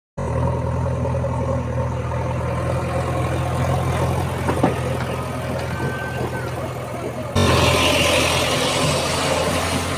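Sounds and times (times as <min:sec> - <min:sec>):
heavy diesel engine droning: 0:00.2 - 0:09.9
short knocks: 0:04.2 - 0:06.8.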